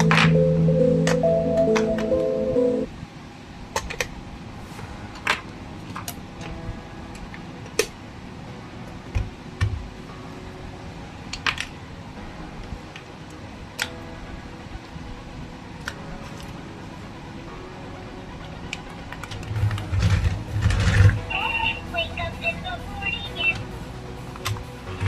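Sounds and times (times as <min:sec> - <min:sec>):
low hum: 0:00.0 - 0:03.1.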